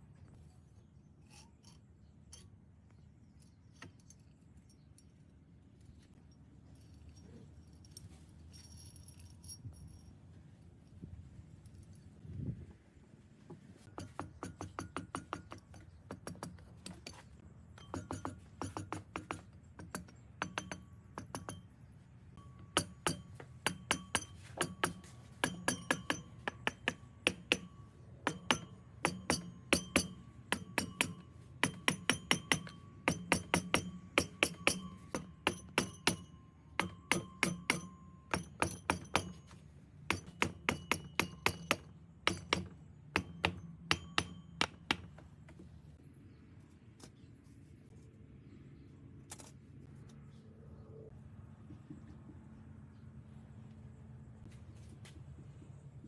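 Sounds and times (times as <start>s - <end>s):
hammer tapping metal: 13.8s - 21.8s, 22.4s - 45.6s.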